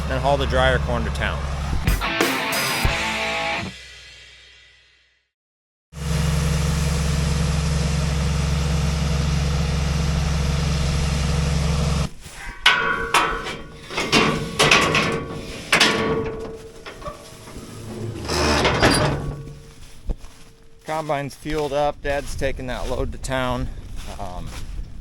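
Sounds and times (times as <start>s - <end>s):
low machine drone: 6.0s - 21.0s
metallic clanks and knocks: 12.4s - 20.8s.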